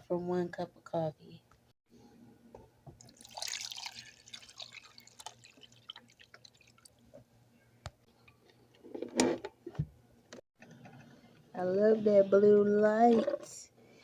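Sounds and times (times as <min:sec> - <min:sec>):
water splashing and dripping: 0:03.0 - 0:07.0.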